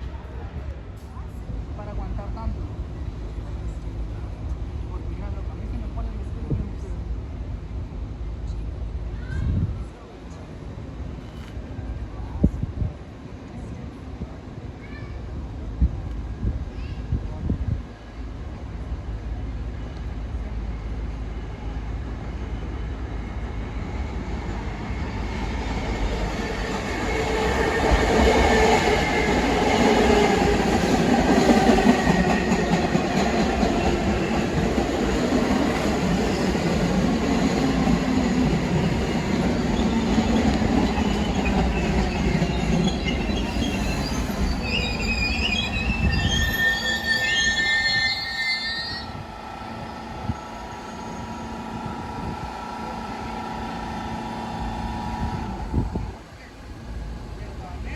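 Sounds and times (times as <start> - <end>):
subway train rumbling past: 0.0 - 57.9
high wavering wheel squeals: 41.0 - 51.9.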